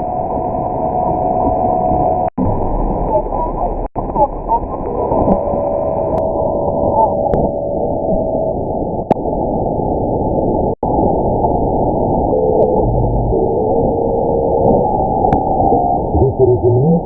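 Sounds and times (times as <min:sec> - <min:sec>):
shortwave radio static: 0:03.0 - 0:06.2, 0:16.2 - 0:17.0.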